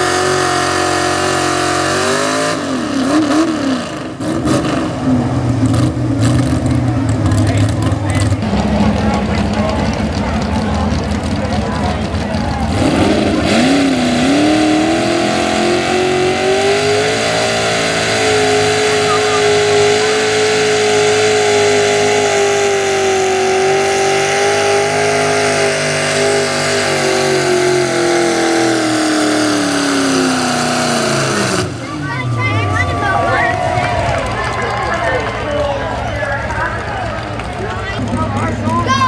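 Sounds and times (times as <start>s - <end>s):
pickup truck engine at full throttle: 0.0s - 39.0s.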